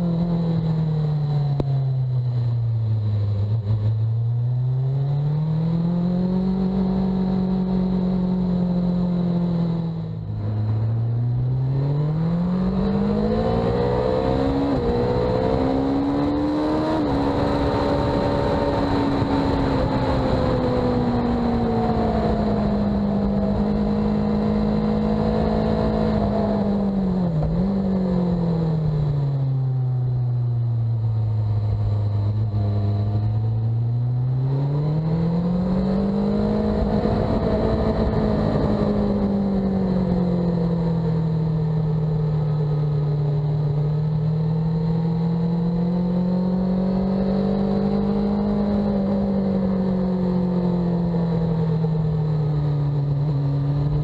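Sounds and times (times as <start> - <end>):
motorcycle engine revving: 3.4 - 54.0
wind noise: 9.5 - 29.3, 34.4 - 41.2.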